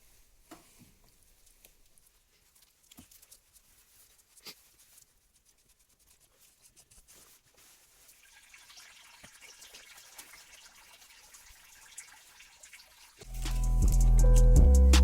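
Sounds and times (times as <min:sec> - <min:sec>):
oil dripping and trickling: 0:07.5 - 0:13.6.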